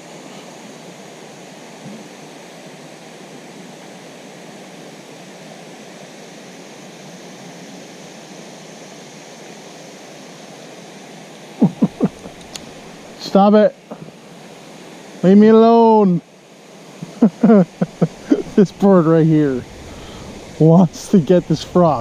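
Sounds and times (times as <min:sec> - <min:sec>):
wind: 0:00.0 - 0:22.0
running water rushing: 0:11.5 - 0:22.0.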